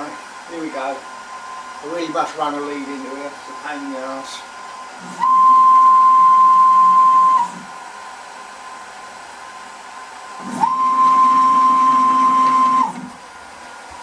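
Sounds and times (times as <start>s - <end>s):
stepper motors whining: 5.0s - 7.8s, 10.4s - 13.2s.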